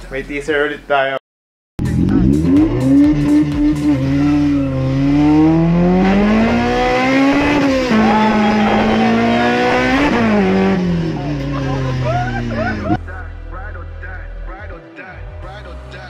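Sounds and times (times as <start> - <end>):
race car engine accelerating: 1.8 - 13.0.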